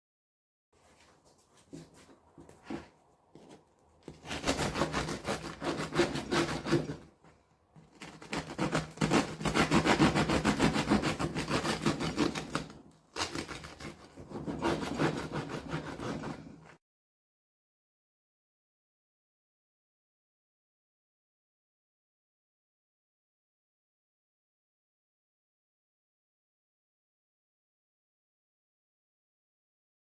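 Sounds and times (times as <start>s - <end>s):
rapid rasping strokes: 4.2s - 7.0s, 8.1s - 12.6s.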